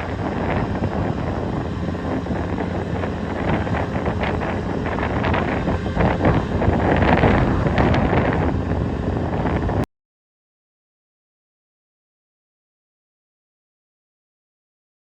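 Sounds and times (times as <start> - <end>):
low steady rumble: 0.0 - 9.8
wind buffeting microphone: 0.0 - 9.8.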